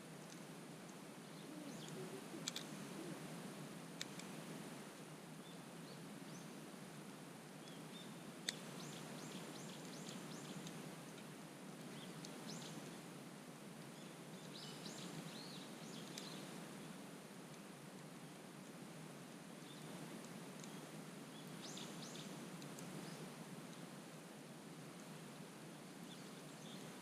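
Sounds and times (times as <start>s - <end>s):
small birds chirping: 1.2s - 3.3s, 7.6s - 10.8s, 11.8s - 13.0s, 13.8s - 16.5s, 19.6s - 20.0s, 20.6s - 23.9s, 25.9s - 27.0s.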